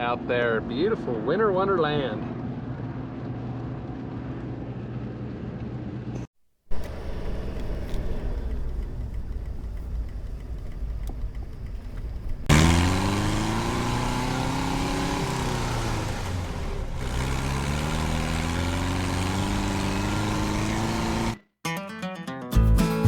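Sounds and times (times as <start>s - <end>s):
vehicle road rumble: 2.3s - 21.4s
engine accelerating: 6.7s - 21.4s.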